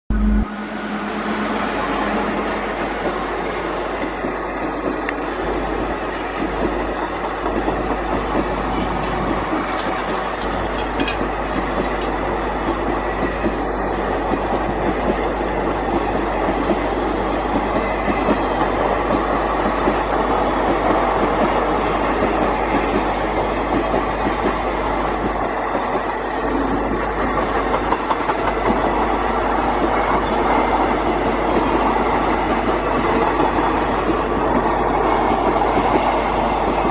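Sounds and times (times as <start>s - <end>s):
train rumbling on rails: 0.1s - 36.9s.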